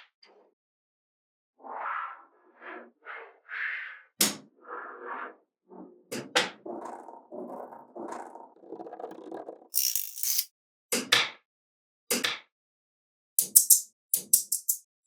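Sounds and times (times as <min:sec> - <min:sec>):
magnetic balls clicking together: 0:09.7 - 0:10.5, 0:13.4 - 0:14.9
magnetic balls rattling: 0:09.7 - 0:10.5.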